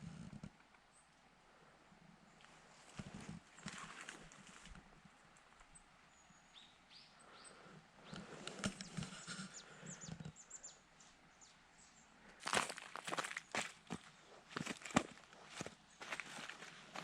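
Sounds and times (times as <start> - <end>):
small birds chirping: 5.5 - 17.0
footsteps crunching: 12.4 - 17.0.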